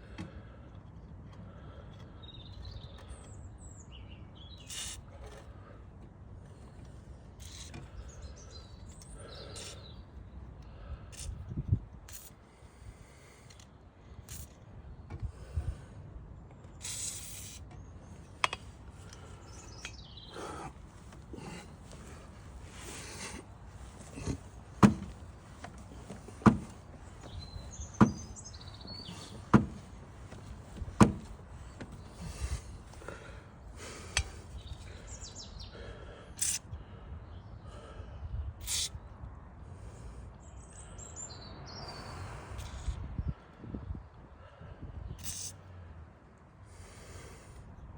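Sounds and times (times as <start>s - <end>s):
birds chirping: 0.0s - 5.8s, 6.4s - 11.3s, 17.6s - 39.2s, 40.3s - 44.4s
sharp knocks: 24.2s - 26.8s, 28.0s - 28.4s, 29.1s - 29.9s, 30.8s - 32.0s.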